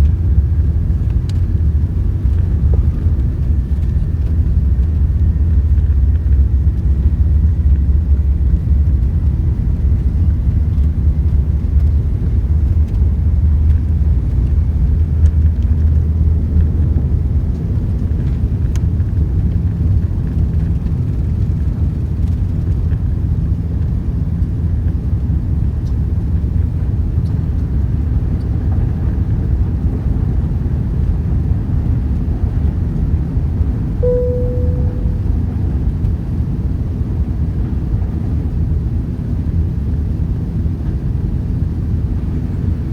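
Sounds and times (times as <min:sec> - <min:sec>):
aircraft cabin engine rumble: 0:00.0 - 0:42.9
brief tone: 0:34.0 - 0:35.7.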